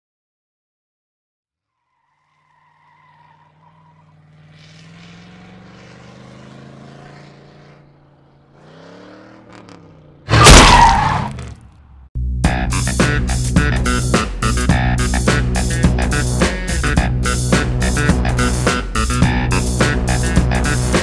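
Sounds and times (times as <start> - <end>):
truck engine running and revving: 2.3 - 12.0, 12.7 - 21.0
sudden very loud burst: 10.3 - 11.2.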